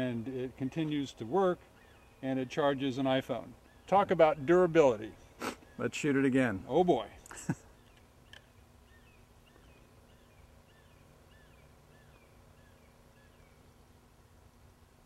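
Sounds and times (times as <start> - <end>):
faint bird chirping: 0.0 - 14.1.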